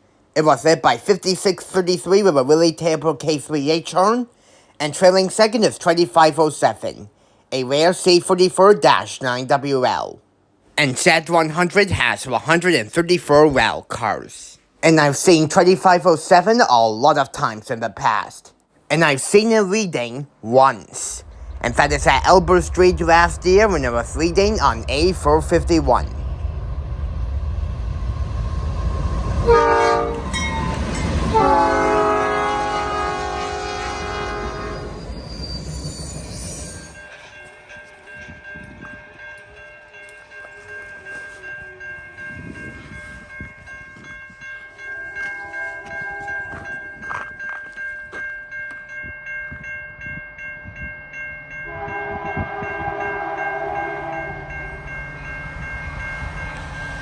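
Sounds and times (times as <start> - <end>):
locomotive rumble: 20.9 - 36.7
rhythmic train wheel clicks: 21.0 - 27.2, 37.0 - 57.0
steady high ringing tones: 21.0 - 29.4, 34.6 - 57.0
locomotive air horn: 29.0 - 30.3, 31.2 - 35.1, 51.7 - 54.5.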